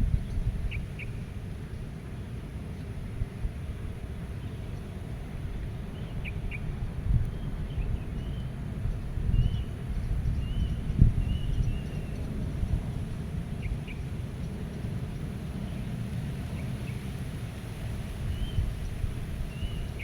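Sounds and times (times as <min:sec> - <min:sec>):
gusty wind rumble: 0:00.0 - 0:20.0.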